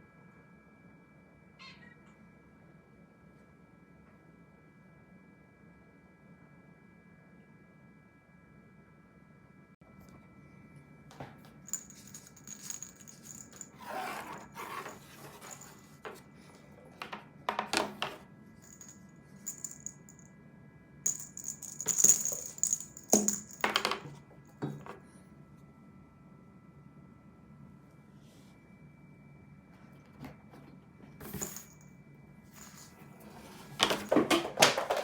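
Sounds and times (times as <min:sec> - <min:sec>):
small metal bell jingling: 0:11.7 - 0:13.8, 0:18.6 - 0:20.2, 0:21.1 - 0:23.7.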